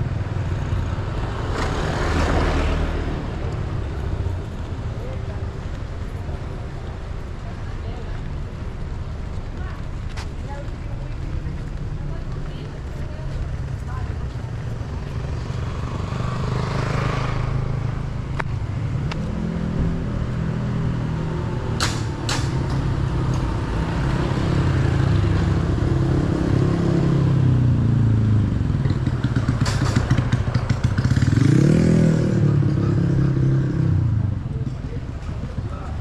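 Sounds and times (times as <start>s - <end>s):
vehicle engines running: 0.0s - 36.0s
engine revving: 28.7s - 34.0s.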